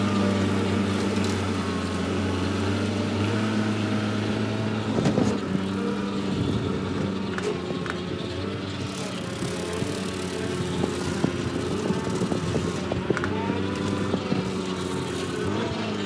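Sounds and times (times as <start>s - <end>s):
skid steer engine running: 0.0s - 16.0s.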